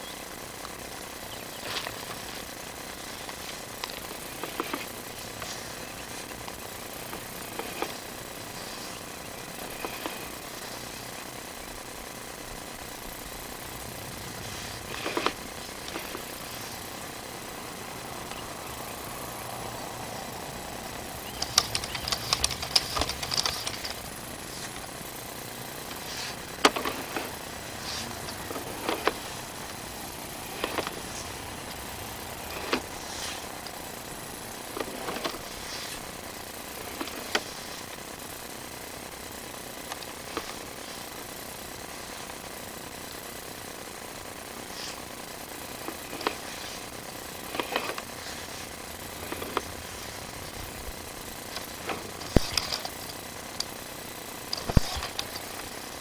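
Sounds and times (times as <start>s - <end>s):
steady hum: 0.0s - 56.0s
cable clicks and rattles in pipe: 21.2s - 24.8s, 51.5s - 53.8s.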